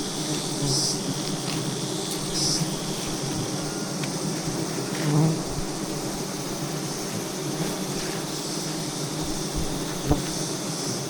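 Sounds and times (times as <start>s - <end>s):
swarm of bees buzzing: 0.0s - 11.0s
short low thud: 9.3s - 10.4s.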